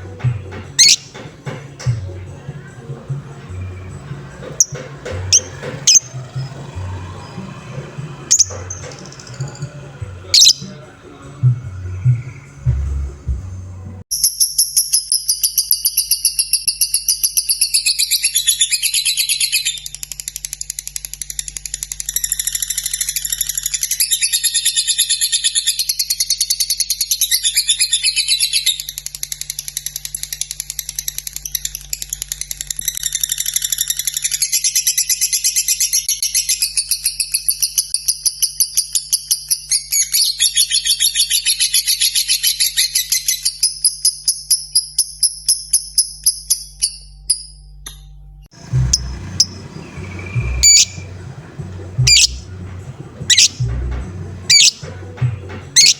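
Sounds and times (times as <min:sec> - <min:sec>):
lovebird chattering trill: 0:00.8 - 0:01.2, 0:04.6 - 0:06.6, 0:08.3 - 0:09.7, 0:10.3 - 0:10.7, 0:48.6 - 0:54.9.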